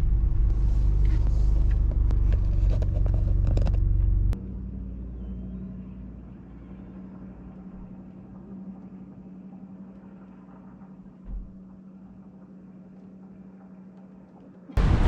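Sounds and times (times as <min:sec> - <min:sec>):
car engine and road hum: 0:00.0 - 0:11.6
low thump: 0:11.2 - 0:11.6.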